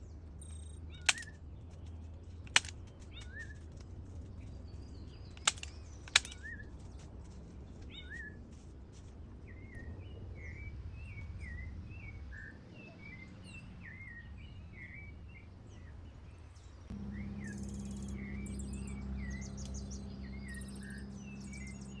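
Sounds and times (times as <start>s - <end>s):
sharp clicks: 0.4s - 3.8s, 5.3s - 6.8s
bird chirping: 11.0s - 22.0s
steady low hum: 16.8s - 22.0s.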